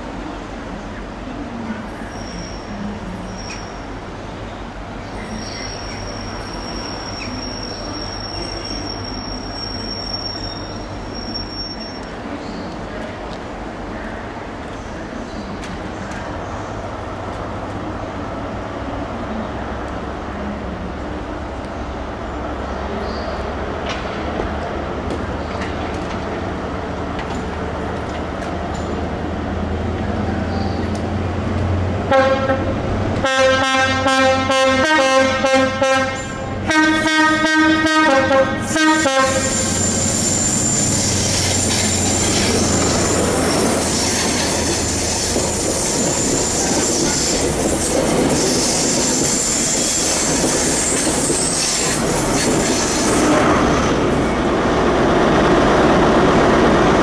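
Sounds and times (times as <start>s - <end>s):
train running on rails: 0.0s - 57.0s
high wheel squeal: 2.0s - 3.8s, 4.5s - 12.2s, 39.3s - 54.2s.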